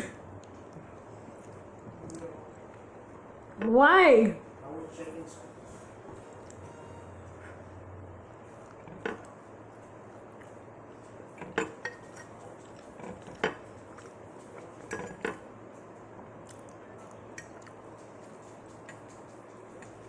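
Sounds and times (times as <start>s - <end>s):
tableware clinking on plate: 11.4s - 13.6s, 14.8s - 15.4s.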